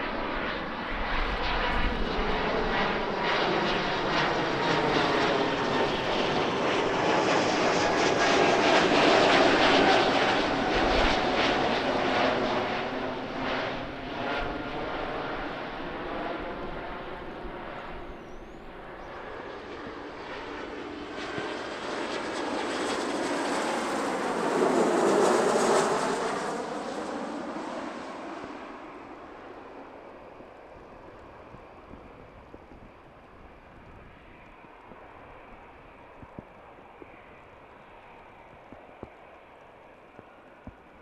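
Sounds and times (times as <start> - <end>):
airliner passing by: 0.0 - 41.0.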